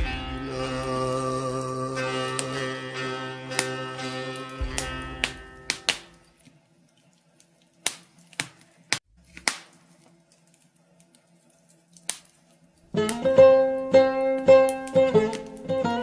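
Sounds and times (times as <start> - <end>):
wood fire crackling: 0.0 - 2.8, 3.5 - 16.0
plucked-string folk music: 0.0 - 6.3, 12.9 - 16.0.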